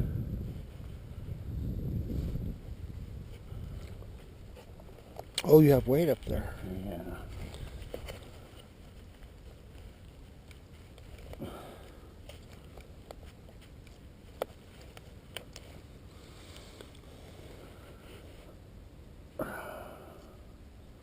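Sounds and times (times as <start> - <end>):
wind rumbling on microphone: 0.0 - 10.4.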